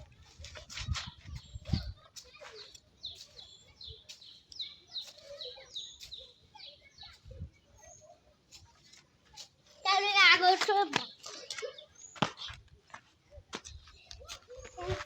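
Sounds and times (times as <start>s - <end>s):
bird chirping: 1.3s - 8.2s.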